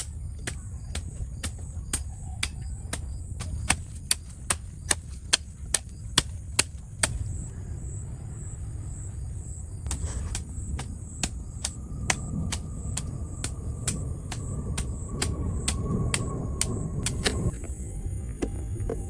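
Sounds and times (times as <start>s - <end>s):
rhythmic sharp knocks: 0.0s - 7.2s, 9.9s - 17.5s
low rumble: 0.0s - 19.0s.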